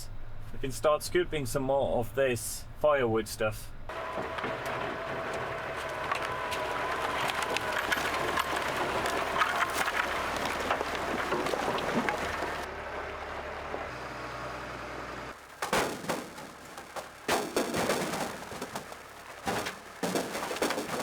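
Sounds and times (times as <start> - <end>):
tractor engine running: 0.0 - 21.0
wood clattering in bucket: 3.9 - 12.7, 15.4 - 21.0.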